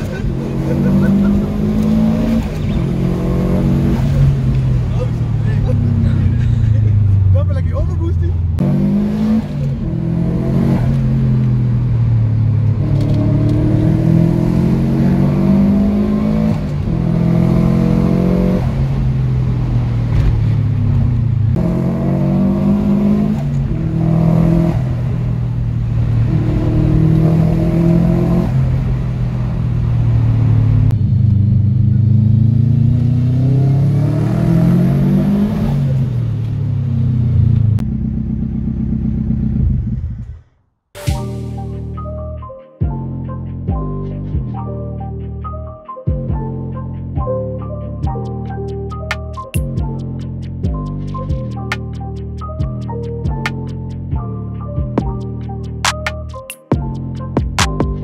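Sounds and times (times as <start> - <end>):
car engine accelerating through gears: 0.0 - 7.6, 8.6 - 40.5.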